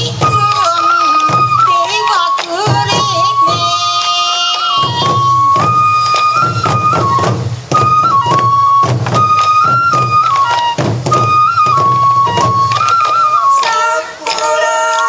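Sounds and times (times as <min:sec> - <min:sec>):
bamboo flute high phrase: 0:00.0 - 0:15.0
taiko drum strikes: 0:04.8 - 0:12.8.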